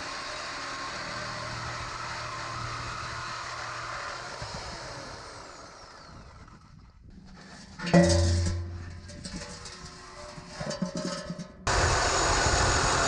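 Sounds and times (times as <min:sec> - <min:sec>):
whirring with falling whine: 0:00.0 - 0:06.7, 0:11.7 - 0:13.0.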